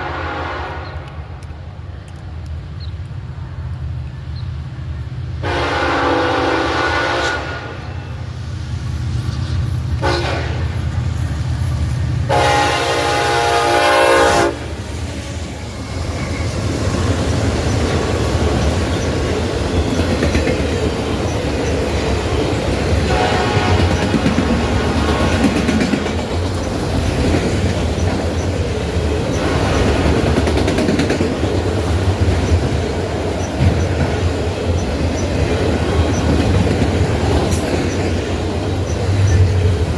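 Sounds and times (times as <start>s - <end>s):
locomotive horn blasts: 0.0s - 1.2s, 5.4s - 8.1s, 10.0s - 10.7s, 12.3s - 14.6s, 23.0s - 24.4s.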